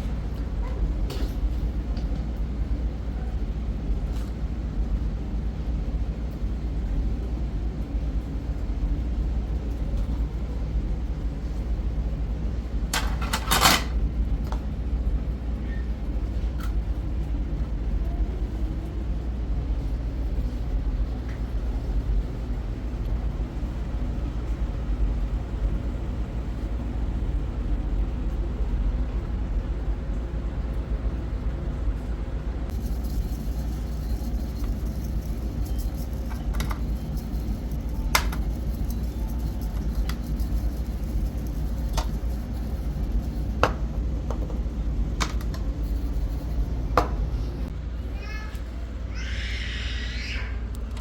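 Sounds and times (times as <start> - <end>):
steady low rumble: 14.0 - 48.2.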